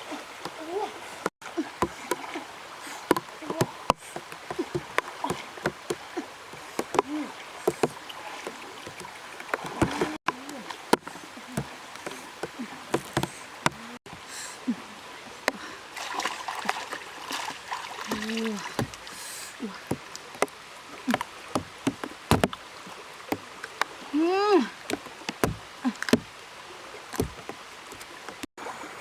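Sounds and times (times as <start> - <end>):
sharp water splashes: 0.0 - 28.9
running water hiss: 0.0 - 29.0.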